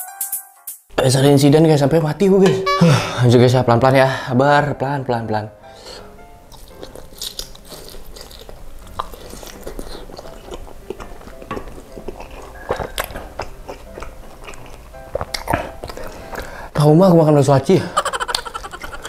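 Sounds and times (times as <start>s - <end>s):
small chewing clicks: 6.5s - 16.5s
wet chewing mouth smacks: 6.6s - 16.5s.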